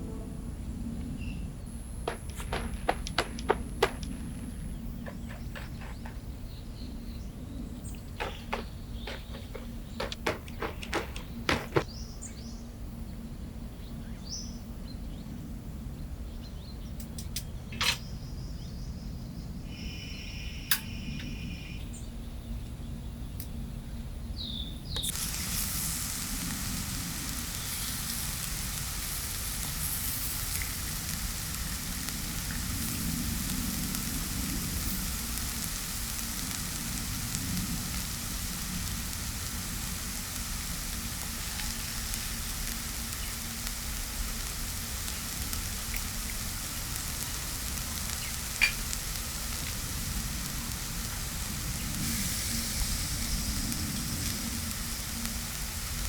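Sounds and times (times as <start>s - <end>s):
heavy rain hissing: 0.0s - 12.0s, 25.0s - 56.0s
low steady hum: 0.0s - 56.0s
sharp clicks and knocks: 2.0s - 6.4s, 7.9s - 11.9s.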